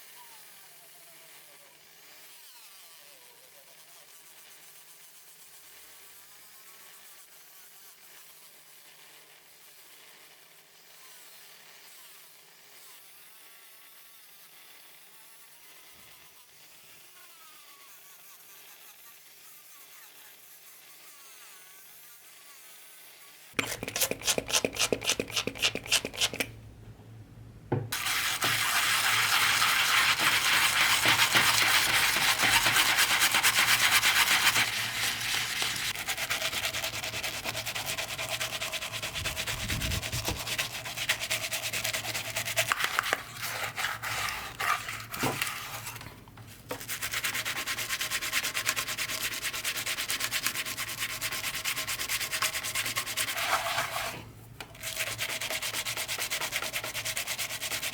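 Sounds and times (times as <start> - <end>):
scrubbing on a brass box: 23.6 - 26.6, 27.9 - 57.9.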